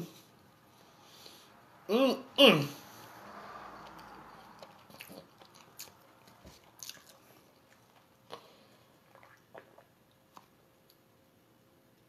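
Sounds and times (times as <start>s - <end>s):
person chewing: 3.8s - 11.1s.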